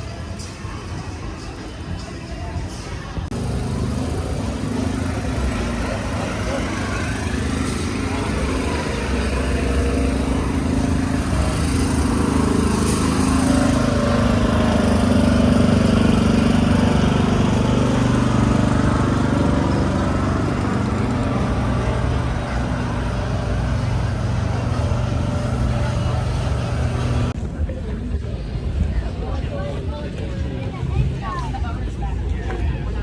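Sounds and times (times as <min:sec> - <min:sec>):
vehicle engine running: 0:03.2 - 0:27.4.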